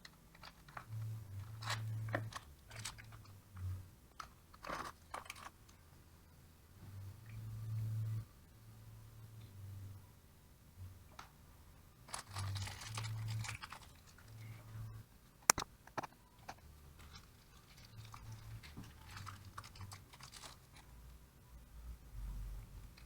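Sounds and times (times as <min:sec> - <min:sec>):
rustling and scraping of parts: 0:00.0 - 0:05.8, 0:12.0 - 0:15.0, 0:15.8 - 0:21.1
sharp click: 0:15.5 - 0:16.2.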